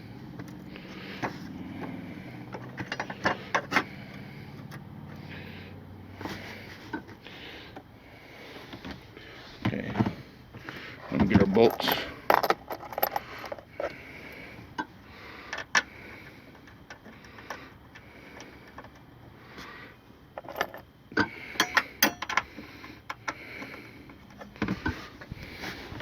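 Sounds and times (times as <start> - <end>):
metal bolts clinking: 11.2 - 13.6, 20.4 - 22.5.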